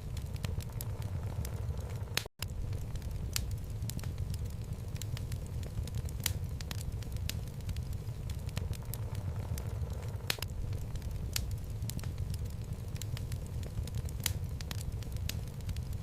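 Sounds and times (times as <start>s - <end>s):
flames rumbling: 0.0s - 16.0s
logs crackling and popping: 0.0s - 16.0s.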